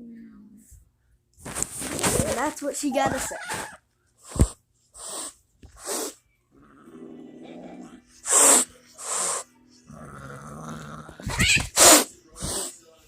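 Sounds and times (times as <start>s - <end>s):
cat hissing: 1.8s - 6.2s, 7.7s - 9.5s, 10.4s - 12.8s
cat growling: 5.0s - 12.7s.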